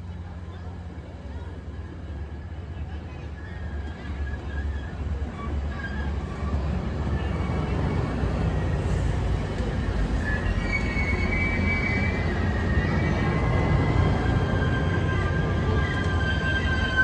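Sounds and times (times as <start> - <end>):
train wheel rumble: 0.0 - 17.0
faint high squeal: 7.1 - 17.0.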